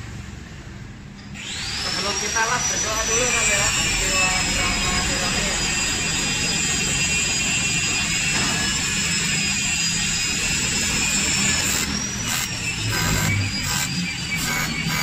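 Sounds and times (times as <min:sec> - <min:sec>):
high whine: 0:01.5 - 0:15.0
welding equipment hissing: 0:09.7 - 0:15.0.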